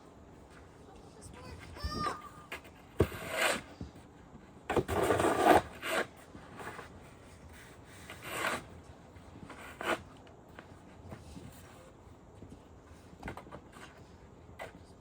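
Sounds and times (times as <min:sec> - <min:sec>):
snow shovel scraping snow: 0:03.0 - 0:03.8, 0:04.8 - 0:06.9, 0:07.5 - 0:08.8.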